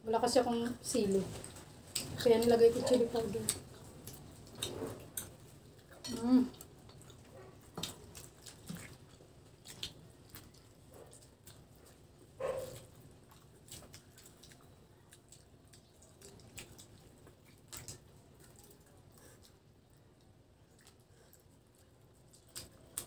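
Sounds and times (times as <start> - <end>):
people chewing: 0.3 - 23.0.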